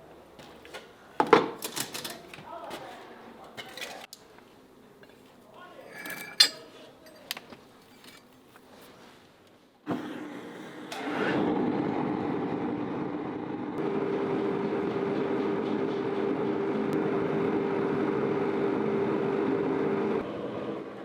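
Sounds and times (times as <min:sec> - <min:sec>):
workshop machine running: 0:09.9 - 0:21.0.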